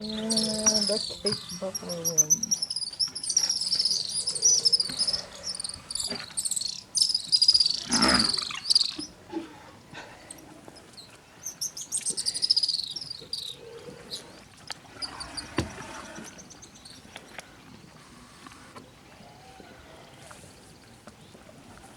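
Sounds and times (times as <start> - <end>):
high-pitched downward chirping calls: 0.0 - 9.1, 11.7 - 13.5.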